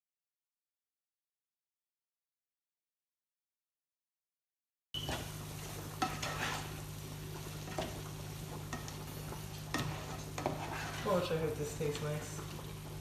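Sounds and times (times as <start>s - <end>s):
spoon scraping and knocking pan: 5.0s - 11.3s
low sizzle: 5.0s - 13.0s.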